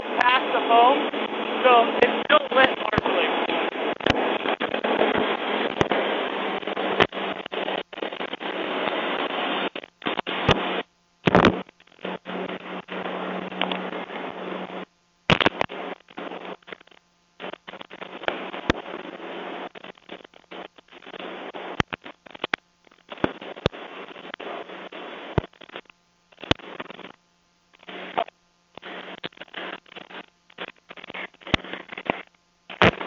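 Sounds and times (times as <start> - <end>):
faint steady hum: 0.0 - 33.0
microphone handling rustle: 9.8 - 12.0.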